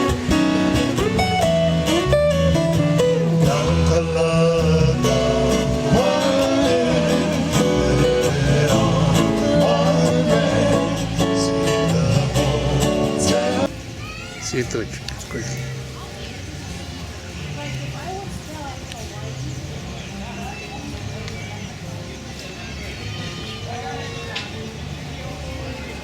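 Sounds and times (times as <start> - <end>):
bass line: 0.0 - 13.7
strummed guitar: 0.0 - 13.7
person singing: 3.0 - 13.8.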